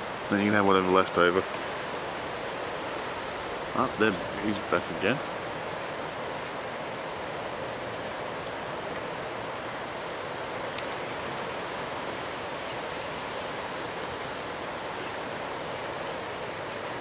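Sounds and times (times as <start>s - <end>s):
waves washing: 0.0s - 17.0s.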